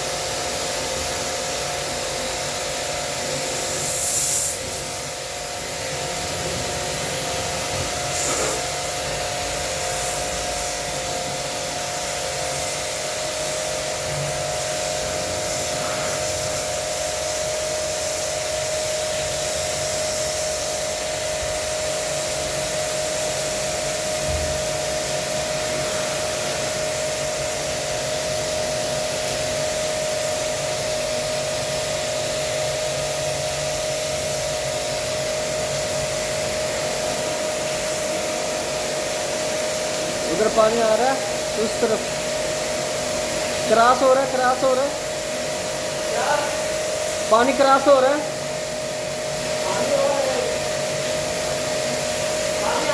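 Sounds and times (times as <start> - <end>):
pressure washer pump whining: 0.0 - 52.9
water jet hissing: 0.0 - 52.9.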